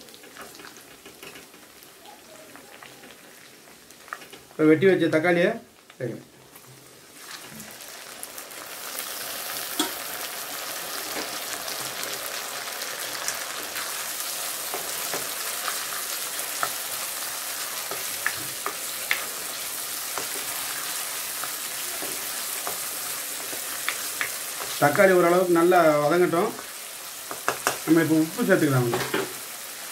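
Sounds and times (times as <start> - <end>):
vegetables sizzling in hot oil: 0.0 - 29.9
spatula tapping a pan: 9.8 - 10.0, 14.7 - 15.8, 17.8 - 19.3, 23.5 - 24.8, 27.2 - 27.9.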